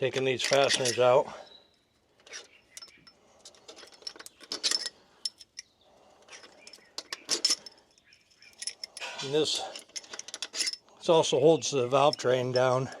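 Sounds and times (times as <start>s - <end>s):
metallic clicks of hand tools: 2.2s - 5.7s.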